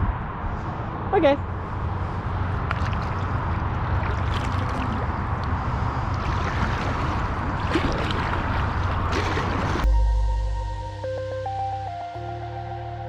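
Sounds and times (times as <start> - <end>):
wind rumble on microphone: 0.0 - 10.1
water sloshing against hull: 2.0 - 9.9
paddle splashes: 2.6 - 9.9.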